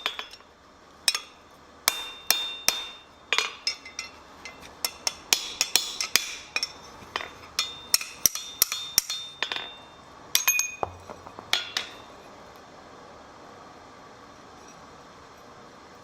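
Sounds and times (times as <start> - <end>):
hammer striking steel on anvil: 1.1 - 12.1.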